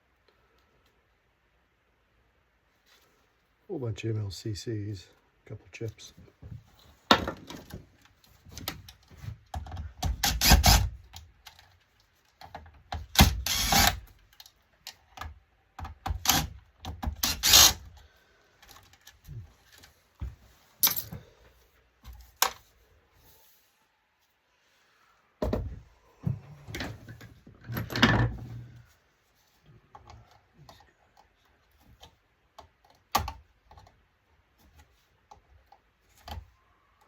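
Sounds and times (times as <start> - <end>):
metal and plastic parts clattering: 20.8 - 21.2.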